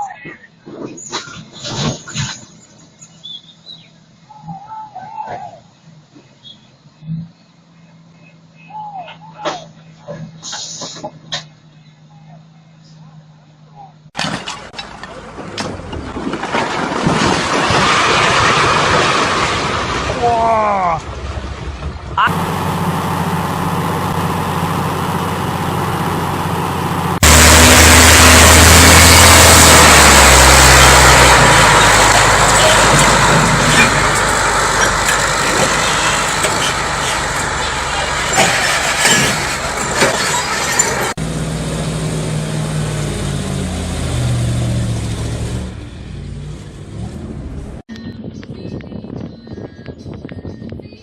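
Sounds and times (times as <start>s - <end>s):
large engine running: 21.0s - 47.8s.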